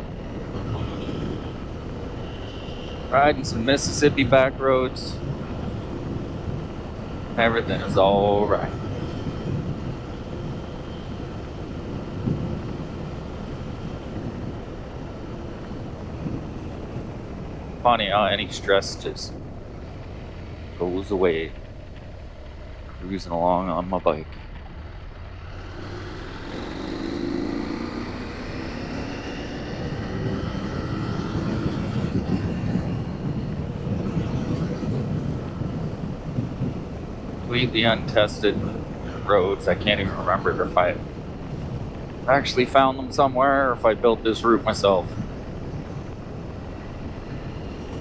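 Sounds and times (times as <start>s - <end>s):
motorcycle cruising: 0.0s - 48.0s
wind rushing over microphone: 0.0s - 48.0s
motorcycle engine running: 19.4s - 34.5s.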